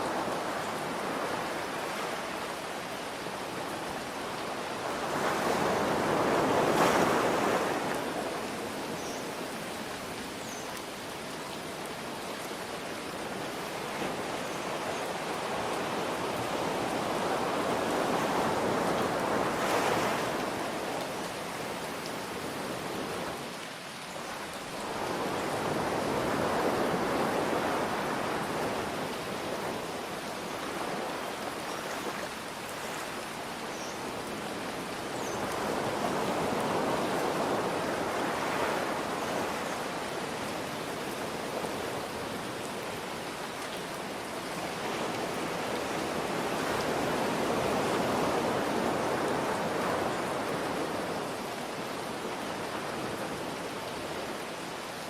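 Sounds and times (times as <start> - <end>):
ocean waves washing in: 0.0 - 10.2
rain hiss: 0.0 - 55.0.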